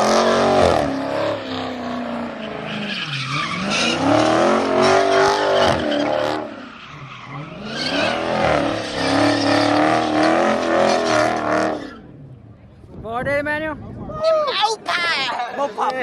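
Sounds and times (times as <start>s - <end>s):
tires squealing: 0.0s - 12.2s
car engine revving: 0.0s - 12.5s.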